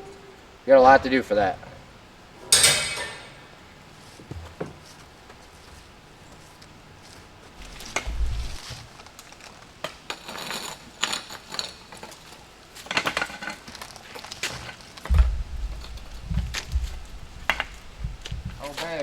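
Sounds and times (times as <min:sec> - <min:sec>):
clattering and scraping: 0:01.0 - 0:03.7, 0:07.6 - 0:19.0
dull thump: 0:07.6 - 0:08.8, 0:15.1 - 0:19.0.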